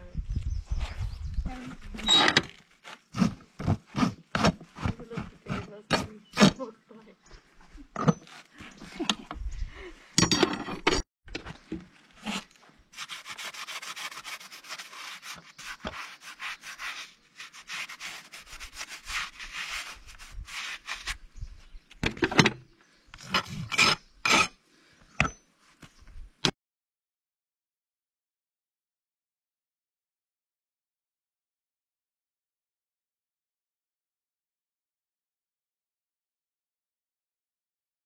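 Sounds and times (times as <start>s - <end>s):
steady scraping: 1.5s - 6.7s.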